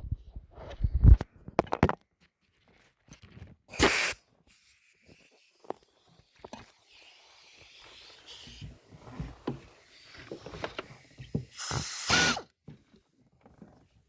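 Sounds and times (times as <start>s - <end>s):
loud hissing burst: 3.7s - 4.2s, 11.5s - 12.4s.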